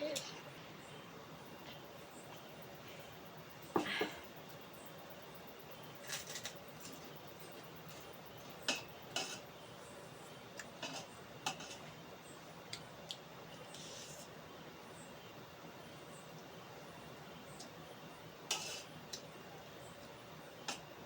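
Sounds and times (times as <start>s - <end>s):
utensils clinking on a plate: 8.7s - 9.4s.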